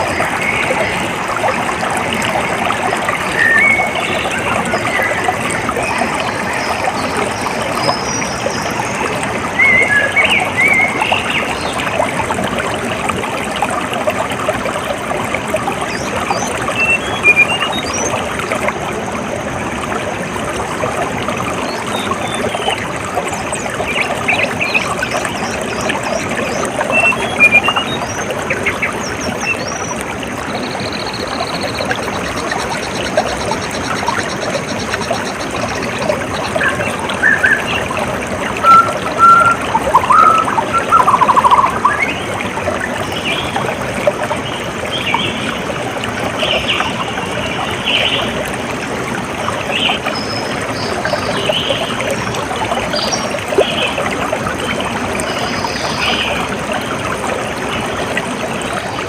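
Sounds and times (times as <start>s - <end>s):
stream water trickling and splashing: 0.0s - 59.0s
small birds chirping: 38.6s - 42.2s.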